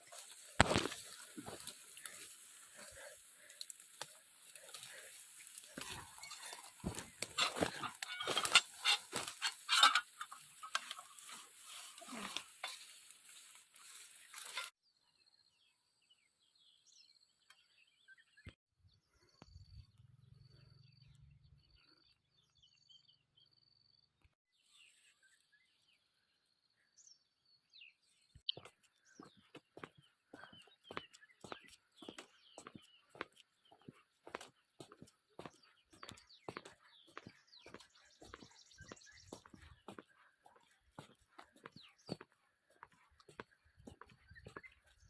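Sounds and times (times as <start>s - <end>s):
leaves and branches rustling: 0.0s - 14.7s.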